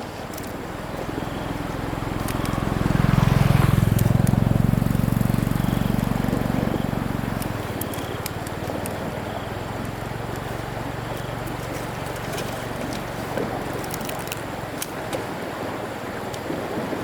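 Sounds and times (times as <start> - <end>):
vehicle engine passing by: 0.0 - 14.8.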